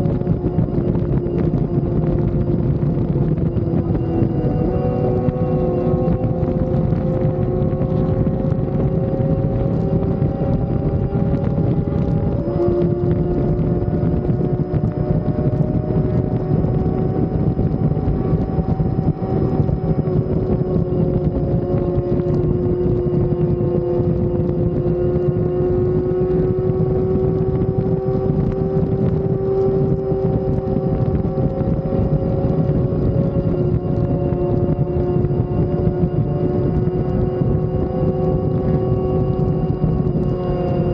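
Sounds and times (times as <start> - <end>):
motorcycle engine cruising: 0.0 - 40.9
wind rushing over microphone: 0.0 - 40.9.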